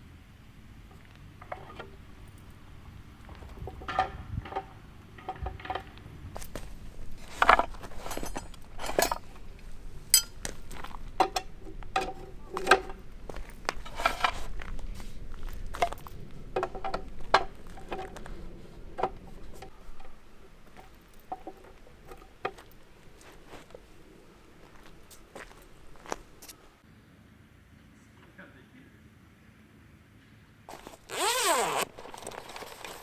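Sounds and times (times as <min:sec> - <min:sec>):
clinks of camp gear handled: 0:03.3 - 0:14.5.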